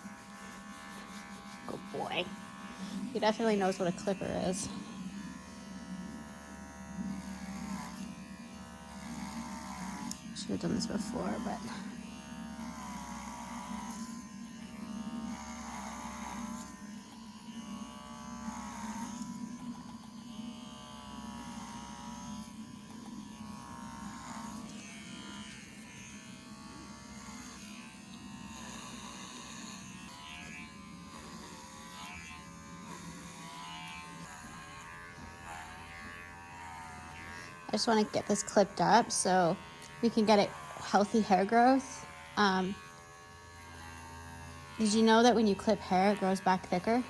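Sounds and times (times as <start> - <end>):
electric hair clippers buzzing: 0.0 - 47.0.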